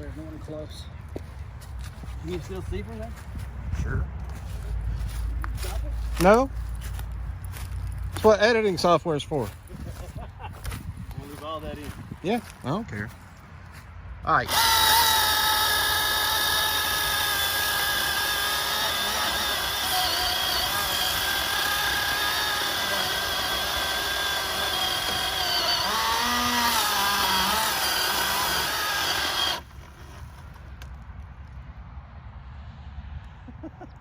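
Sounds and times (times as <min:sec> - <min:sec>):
electric chainsaw cutting wood: 0:14.5 - 0:30.4.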